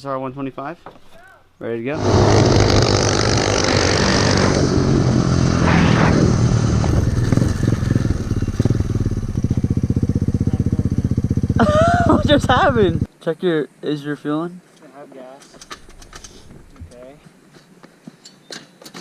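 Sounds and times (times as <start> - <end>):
motorbike engine revving and idling: 2.0 - 13.1.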